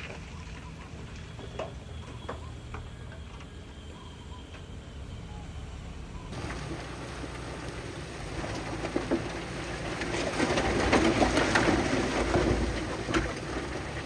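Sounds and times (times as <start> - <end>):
low machine rumble: 0.0 - 14.0
loose stone and soil sliding: 6.3 - 14.0.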